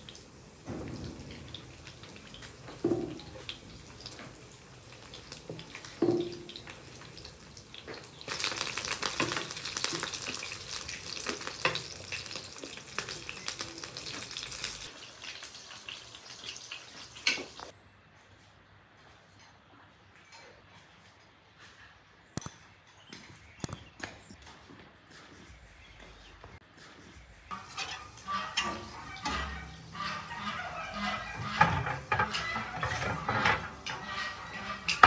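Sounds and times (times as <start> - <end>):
meat sizzling in oil: 3.2 - 17.7.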